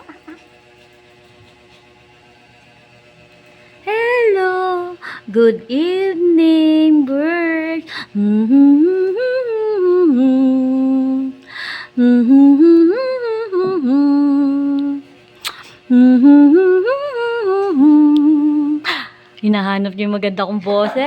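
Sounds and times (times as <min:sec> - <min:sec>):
woman humming a tune: 0:03.9 - 0:11.4, 0:12.0 - 0:15.1, 0:15.9 - 0:19.0.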